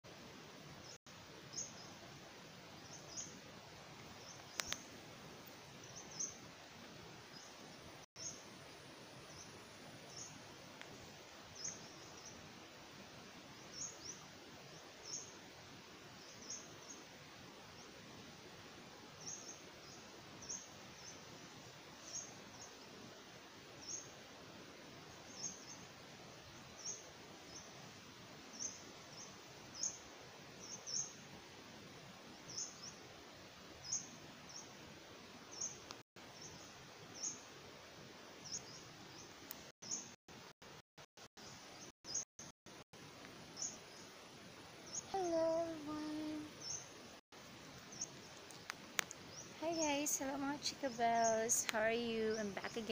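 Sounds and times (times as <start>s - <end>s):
faint hiss: 0.1s - 40.8s, 43.0s - 52.9s
small bird chirping: 4.1s - 4.9s, 9.2s - 12.4s, 35.5s - 37.5s, 44.8s - 47.0s.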